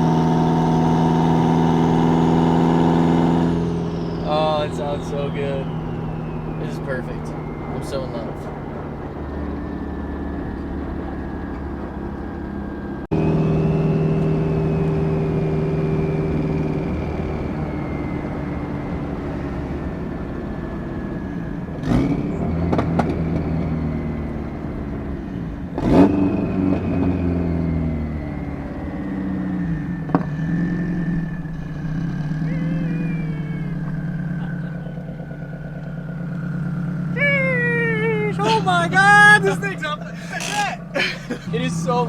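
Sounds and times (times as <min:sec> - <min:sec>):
car engine accelerating: 0:00.0 - 0:42.0
sharp exhaust cracks: 0:28.7 - 0:42.0.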